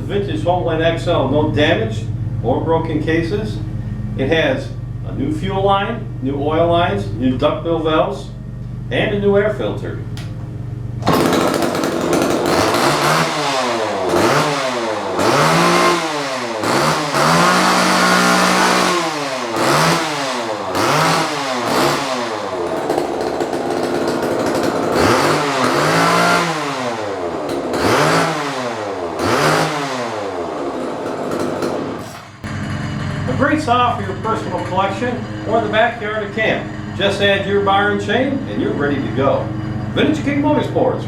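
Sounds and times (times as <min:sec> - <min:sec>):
chainsaw revving: 0:11.0 - 0:40.7.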